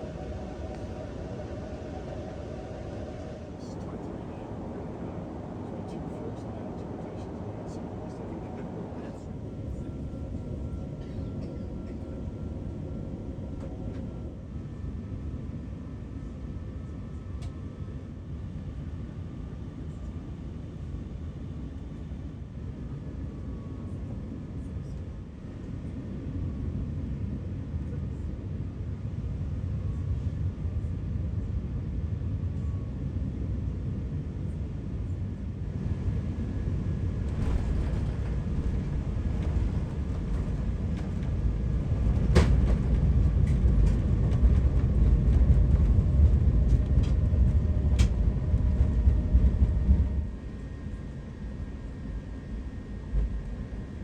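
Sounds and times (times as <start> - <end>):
aircraft cabin rumble: 0.0 - 15.0, 35.6 - 54.0
landing roll rumble on runway: 37.0 - 50.3.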